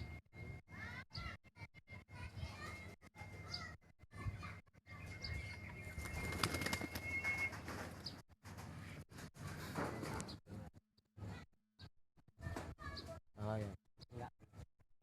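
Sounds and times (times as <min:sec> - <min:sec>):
pigeon wings flapping: 0:05.9 - 0:10.2.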